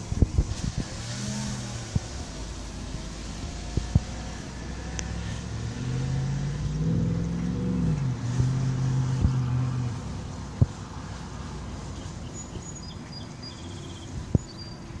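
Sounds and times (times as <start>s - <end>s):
vehicle engine running: 0.0s - 15.0s
faint high bird chirps: 12.0s - 15.0s.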